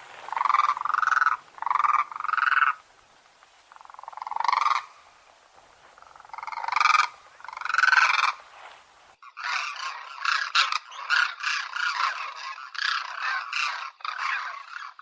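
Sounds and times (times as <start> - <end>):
crane trumpeting calls: 0.0 - 2.9, 6.0 - 8.5.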